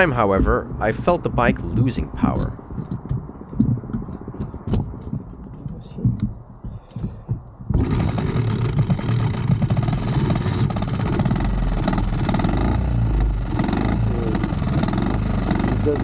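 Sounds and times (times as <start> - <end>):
mini-bike engine running poorly: 7.8 - 16.0.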